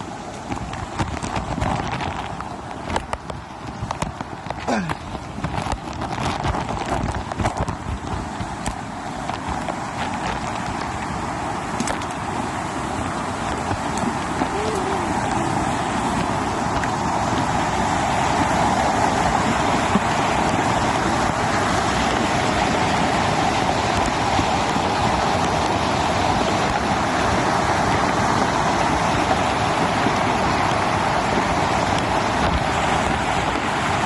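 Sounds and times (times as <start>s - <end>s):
river current rushing: 0.0s - 34.0s.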